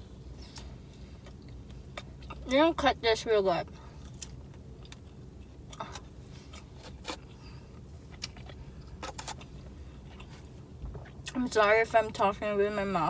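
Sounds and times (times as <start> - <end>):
low steady hum: 0.0 - 13.0
quiet chewing: 4.0 - 11.4.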